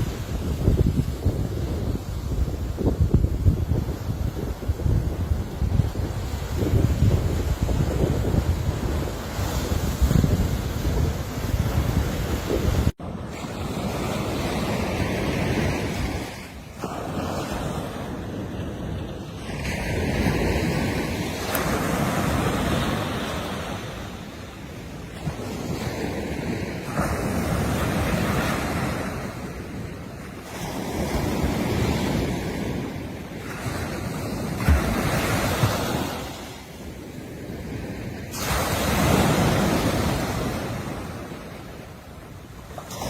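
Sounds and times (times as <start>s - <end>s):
wind on microphone thumps: 0.0s - 15.0s, 30.5s - 41.3s
sea waves breaking: 0.0s - 43.0s.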